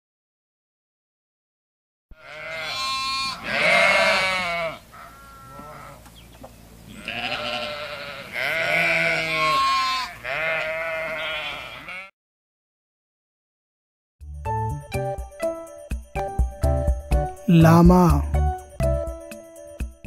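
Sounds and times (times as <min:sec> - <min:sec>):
sheep bleating: 0:02.2 - 0:06.0, 0:06.9 - 0:12.1.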